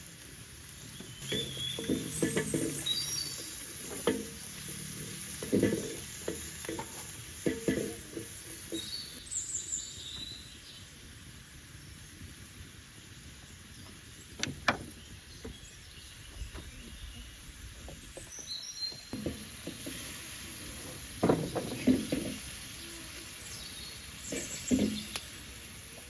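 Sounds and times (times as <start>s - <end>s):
utensil knocking and scraping in pot: 1.2s - 9.2s, 19.0s - 20.2s, 20.8s - 22.6s.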